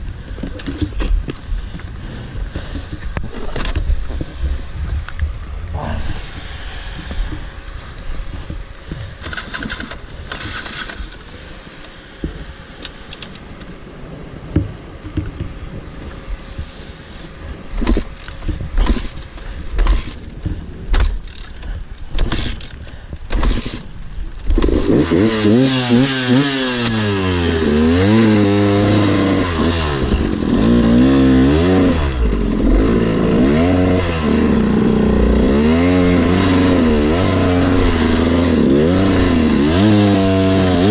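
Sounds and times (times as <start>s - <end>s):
dirt bike engine revving: 23.3s - 23.9s, 24.5s - 40.9s.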